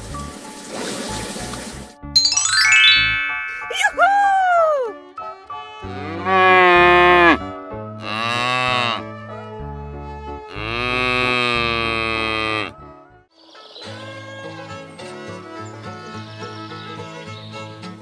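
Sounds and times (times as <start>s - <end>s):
light background music: 0.0s - 10.6s
cow mooing: 5.8s - 7.4s, 8.0s - 9.0s, 10.5s - 12.8s.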